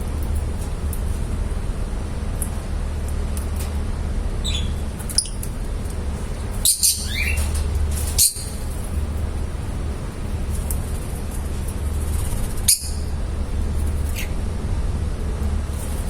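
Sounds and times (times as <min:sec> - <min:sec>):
steady low hum: 0:00.0 - 0:16.0
lovebirds chirping and squawking: 0:04.4 - 0:05.6, 0:06.3 - 0:09.0, 0:12.4 - 0:13.2.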